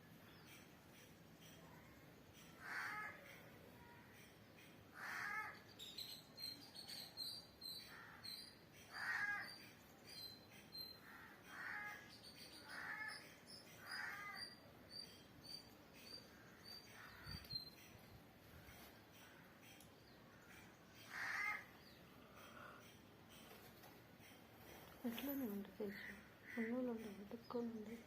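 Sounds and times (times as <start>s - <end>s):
bird cawing: 2.4s - 5.6s, 8.9s - 9.7s, 11.0s - 14.6s, 18.6s - 23.6s
small bird chirping: 5.5s - 28.0s.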